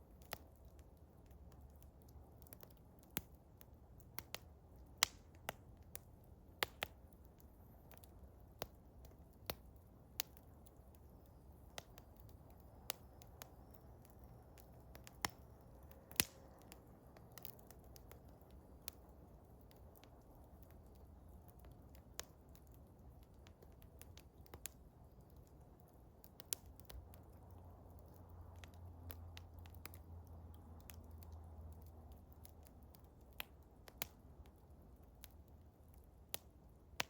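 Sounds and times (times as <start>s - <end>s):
wood fire crackling: 0.0s - 37.0s
sharp fire pops: 16.1s - 16.8s.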